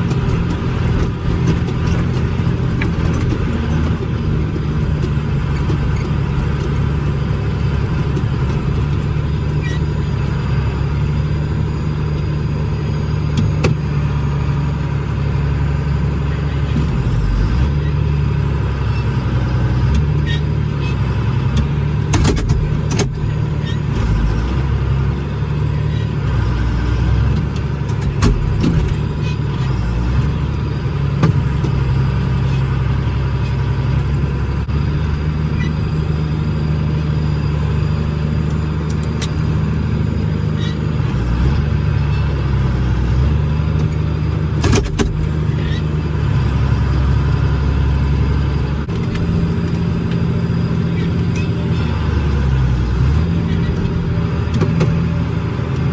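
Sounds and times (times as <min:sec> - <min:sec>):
sharp clicks and rattles: 0:00.0 - 0:10.0, 0:21.5 - 0:24.6
tractor engine droning: 0:00.0 - 0:55.9.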